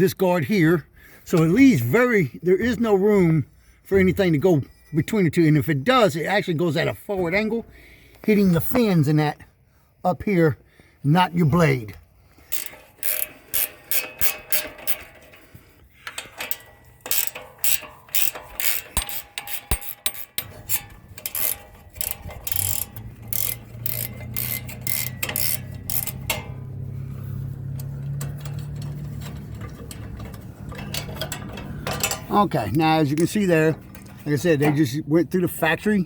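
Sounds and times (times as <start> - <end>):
ratchet wrench clicking: 12.4 - 26.7, 27.8 - 32.3.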